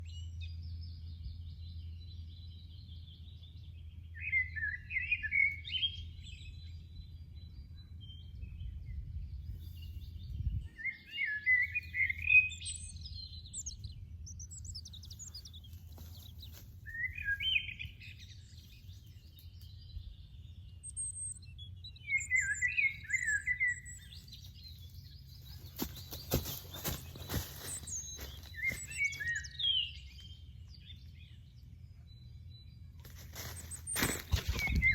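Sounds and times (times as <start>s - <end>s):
high bird chirps: 10.7s - 31.0s, 33.1s - 34.9s
rustling crackles: 25.4s - 29.2s, 33.0s - 34.9s.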